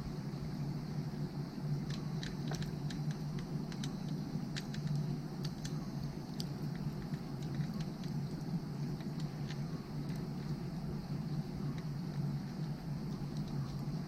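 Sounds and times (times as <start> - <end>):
low hum: 0.0 - 14.0
firewood crackling and popping: 1.8 - 10.9.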